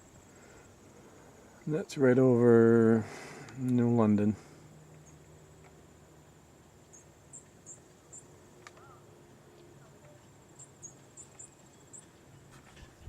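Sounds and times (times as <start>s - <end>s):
faint low hum: 0.0s - 13.0s
insects chirping: 0.0s - 13.0s
high-pitched insect trill: 6.8s - 9.0s, 9.8s - 12.5s.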